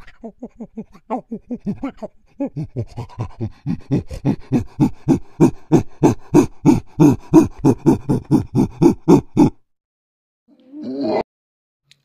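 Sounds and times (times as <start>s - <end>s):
monkey panting hoots: 0.0s - 9.6s.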